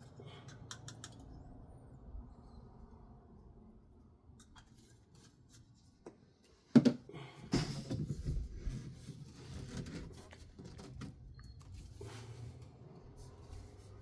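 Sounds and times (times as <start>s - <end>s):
objects clattering and scraping: 6.4s - 14.0s.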